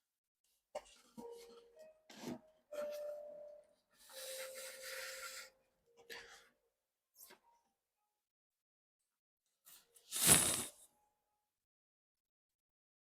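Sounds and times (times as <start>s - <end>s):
scraping and rubbing of hand work: 10.1s - 10.8s.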